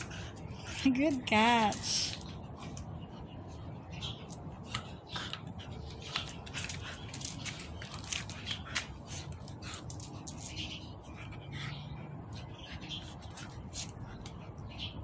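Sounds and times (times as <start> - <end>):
dog chewing toy: 3.5 - 10.6.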